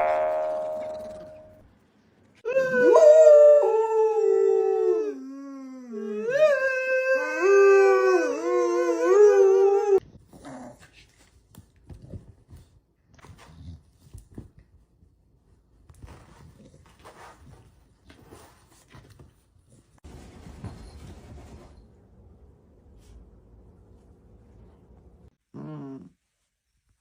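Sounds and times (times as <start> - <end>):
dog howling: 2.5 - 10.0.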